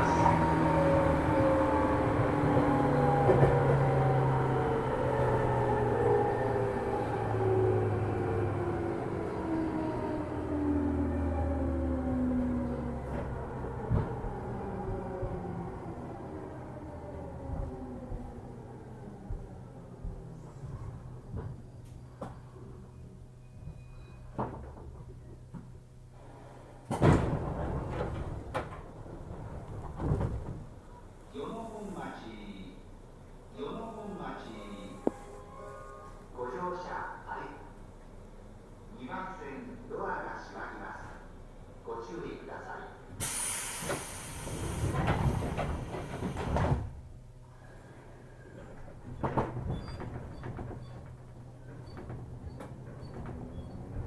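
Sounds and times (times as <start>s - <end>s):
train doors sliding open: 0.0s - 10.4s, 20.2s - 31.1s, 43.2s - 54.0s
train equipment low hum: 0.0s - 54.0s
train doors shutting thud: 26.8s - 30.8s, 43.2s - 47.1s
train doors sliding with hiss: 43.2s - 47.0s.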